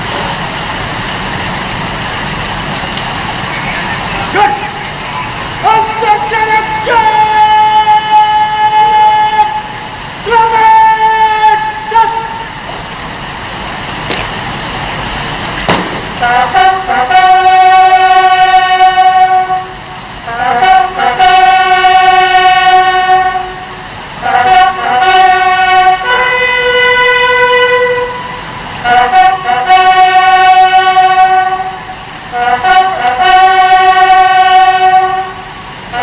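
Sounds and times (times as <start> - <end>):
noisy rush: 0.0 - 36.0
loud horn blasts: 3.6 - 12.6, 15.7 - 36.0.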